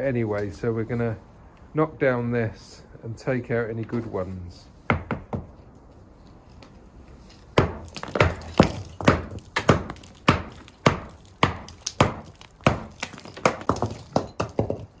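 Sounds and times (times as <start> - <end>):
strikes on brick wall: 7.6 - 15.0.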